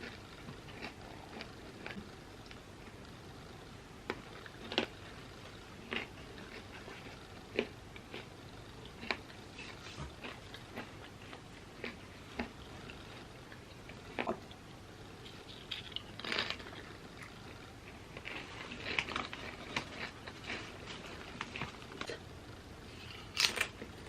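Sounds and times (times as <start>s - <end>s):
quiet chewing: 0.0s - 3.2s, 4.0s - 22.2s
chips crunching: 15.4s - 17.3s, 18.1s - 22.2s, 23.3s - 24.0s.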